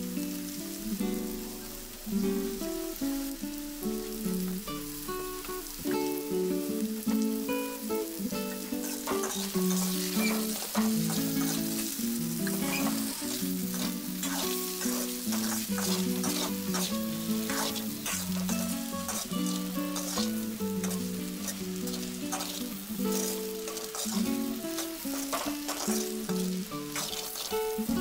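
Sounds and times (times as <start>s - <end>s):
food sizzling in a pan: 0.0s - 28.0s
spatula scraping a pan: 8.8s - 27.9s.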